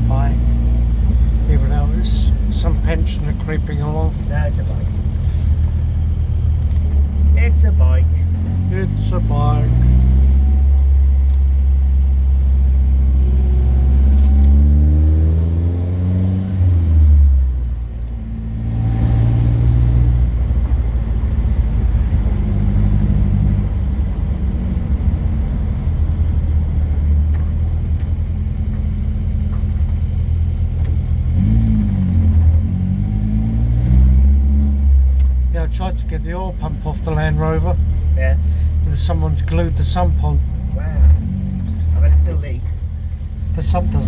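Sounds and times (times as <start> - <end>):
car engine while driving: 0.0 - 44.0.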